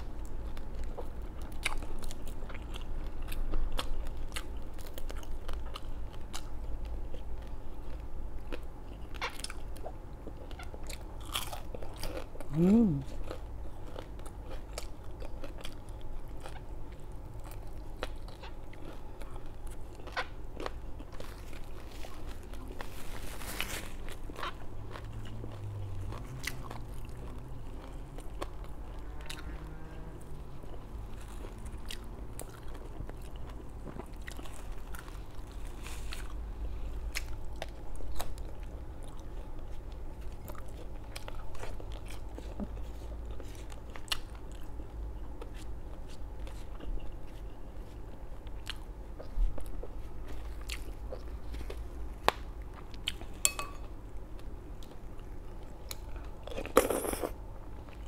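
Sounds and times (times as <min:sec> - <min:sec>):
crunching crispy fried food: 0:00.4 - 0:29.9.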